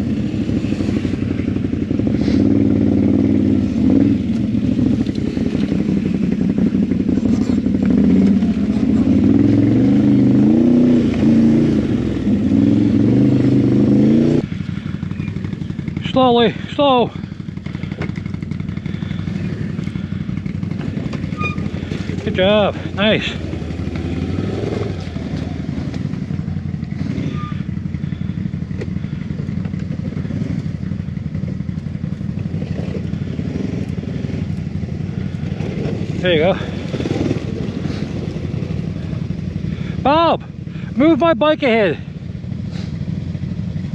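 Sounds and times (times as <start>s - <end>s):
atv engine revving under load: 0.0s - 43.9s.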